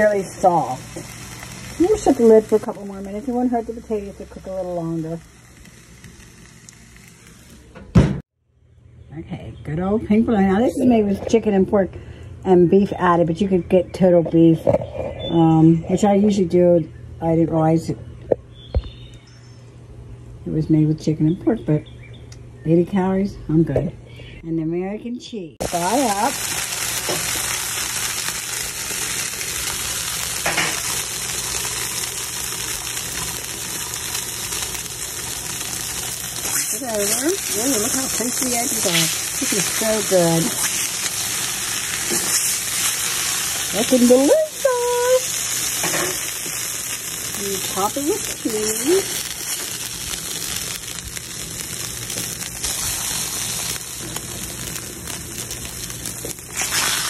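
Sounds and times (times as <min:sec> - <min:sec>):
meat sizzling on a griddle: 0:00.0 - 0:08.1, 0:25.6 - 0:57.0.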